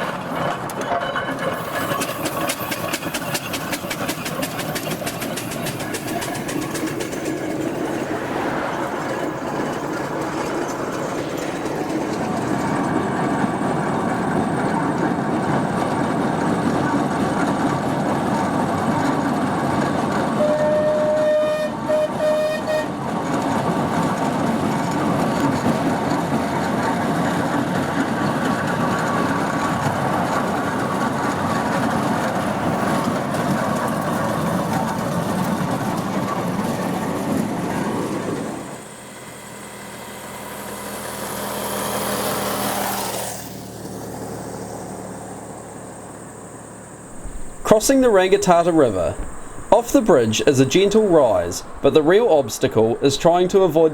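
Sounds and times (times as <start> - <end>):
steam engine clatter and rumble: 0.0 - 53.9
steam whistle toots: 20.4 - 23.0.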